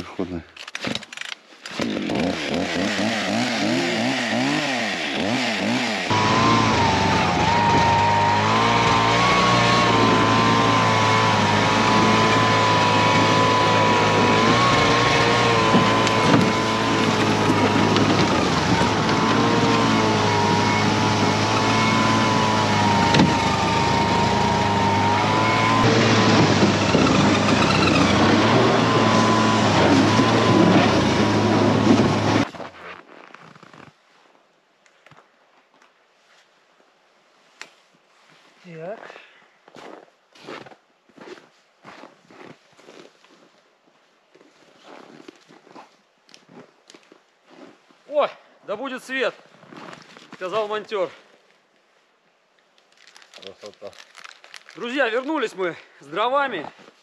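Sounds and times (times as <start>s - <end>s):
snowmobile engine running: 2.2s - 32.5s.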